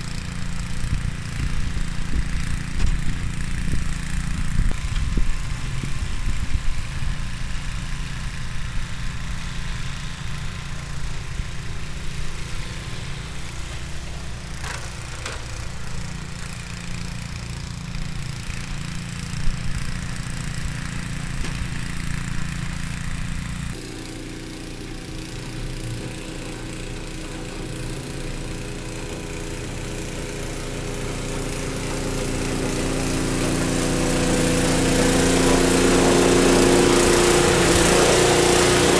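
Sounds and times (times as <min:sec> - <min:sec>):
snowblower engine running: 0:00.0 - 0:38.9.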